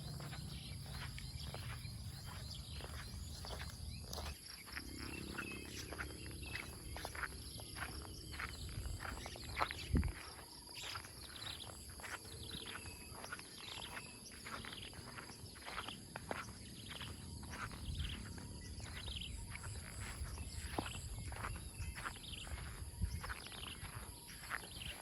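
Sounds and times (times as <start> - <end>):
birds chirping: 0.0 - 25.0
high insect drone: 0.0 - 25.0.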